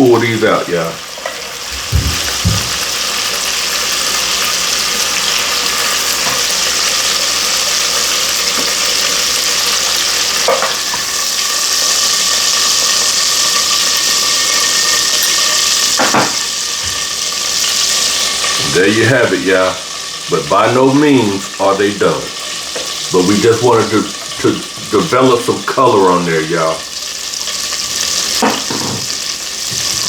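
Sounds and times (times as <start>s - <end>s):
chicken sizzling in a pan: 0.0s - 30.0s
thump: 1.7s - 2.8s.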